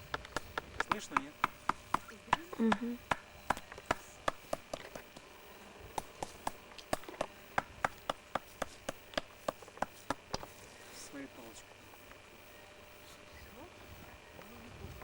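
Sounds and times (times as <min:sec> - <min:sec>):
sharp chopping taps: 0:00.0 - 0:05.2, 0:05.9 - 0:10.6.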